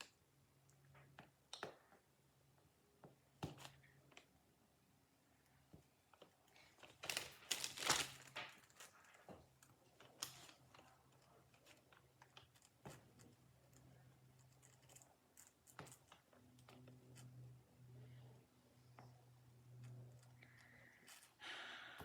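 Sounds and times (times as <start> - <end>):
packing paper rustling: 6.6 - 9.3.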